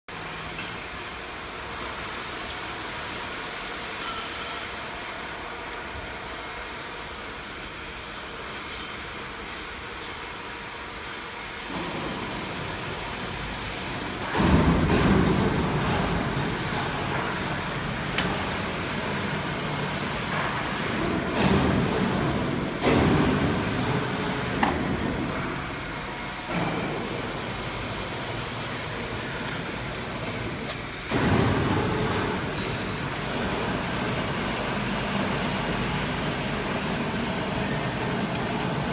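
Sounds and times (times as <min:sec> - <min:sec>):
slitter machine running: 0:11.6 - 0:38.9.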